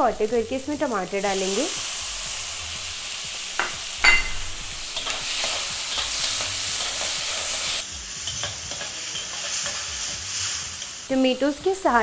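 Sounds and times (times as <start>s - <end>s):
onions sizzling in hot oil: 0.0s - 12.0s
ladle clinking on pan: 3.6s - 4.5s.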